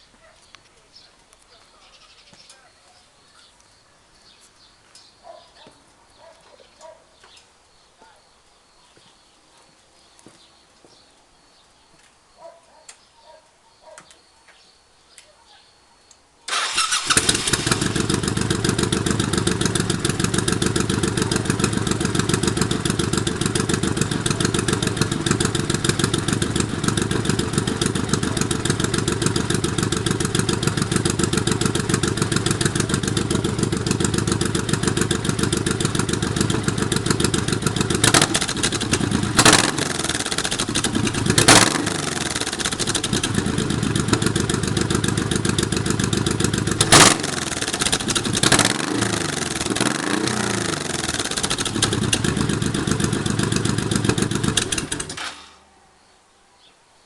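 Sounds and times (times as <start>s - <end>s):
motorcycle engine idling: 16.5s - 55.3s
engine revving: 16.5s - 55.4s.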